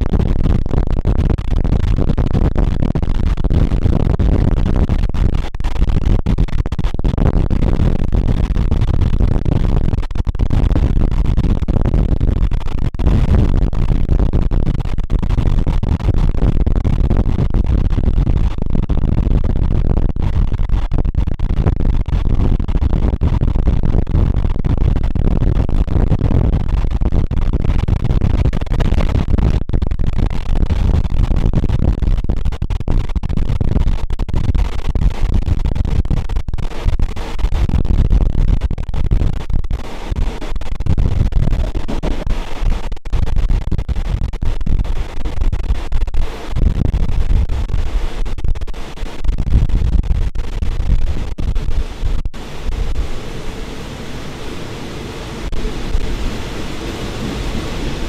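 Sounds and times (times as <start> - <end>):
train carriage rumbling: 52.4 - 58.0.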